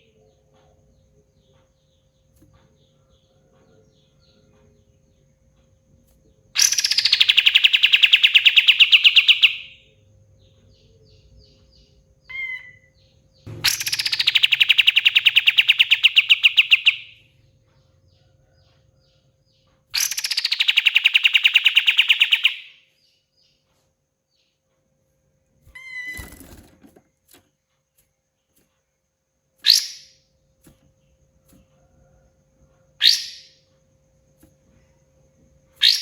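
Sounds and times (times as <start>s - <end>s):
songbird rattling trill: 6.6s - 9.9s, 10.6s - 18.3s, 19.9s - 22.8s, 29.6s - 30.2s, 35.8s - 36.0s
bird jumbled call: 11.2s - 17.2s, 20.0s - 22.8s
bird sharp note: 13.5s - 16.7s.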